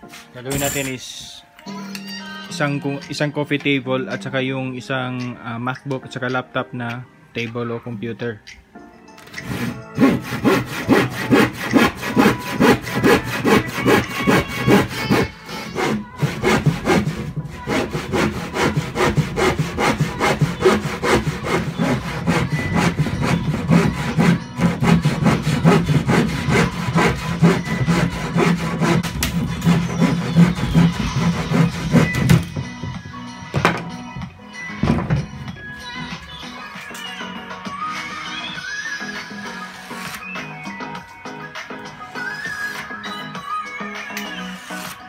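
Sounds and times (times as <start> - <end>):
hand saw cutting plywood: 9.4 - 32.7.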